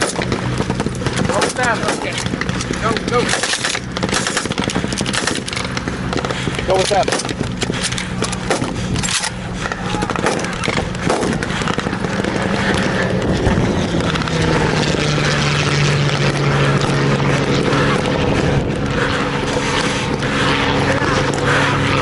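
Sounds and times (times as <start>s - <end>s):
vehicle engine droning: 0.0s - 22.0s.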